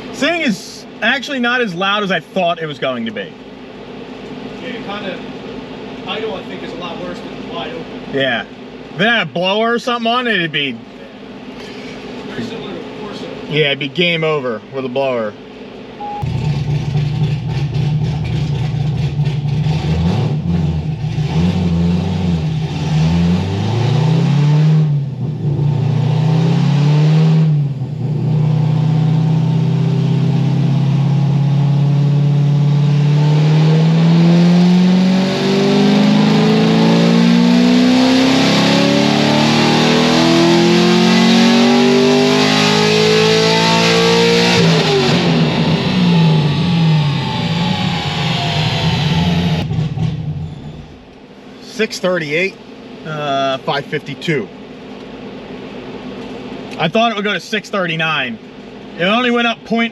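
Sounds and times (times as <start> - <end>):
engine revving on dyno: 16.0 - 51.0.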